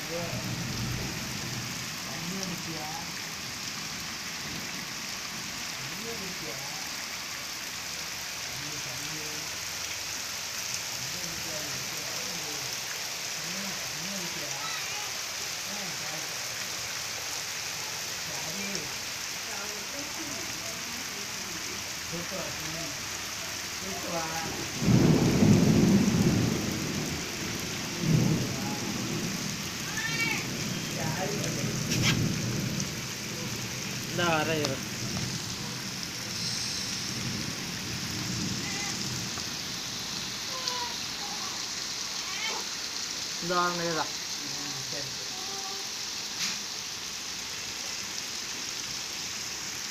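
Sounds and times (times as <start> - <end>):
steady rain hiss: 0.0 - 49.9
low rumbles of thunder: 0.3 - 1.9, 24.4 - 34.2.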